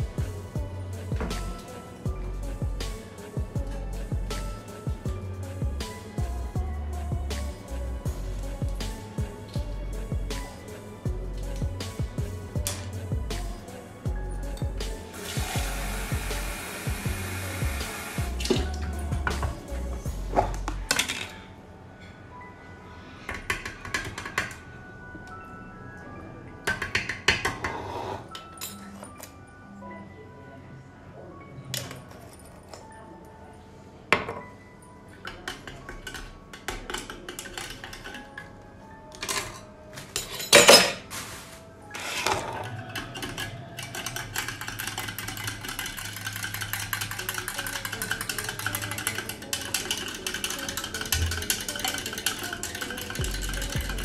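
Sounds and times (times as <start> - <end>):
soft background music: 0.0 - 54.0
dishes and cutlery clattering: 20.4 - 21.5, 35.2 - 38.5, 39.1 - 41.4, 42.0 - 54.0.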